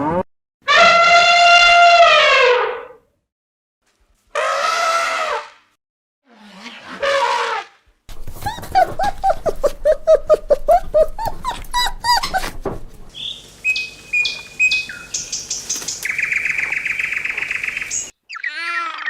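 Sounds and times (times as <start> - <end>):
bird chirping: 13.1 - 19.0
bird trilling: 13.1 - 19.0.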